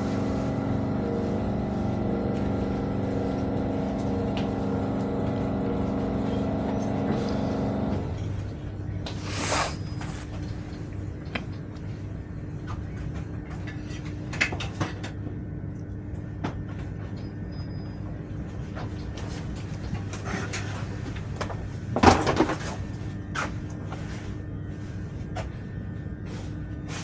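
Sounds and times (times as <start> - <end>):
steady hum: 0.0 - 6.3, 8.0 - 14.0, 22.7 - 27.0.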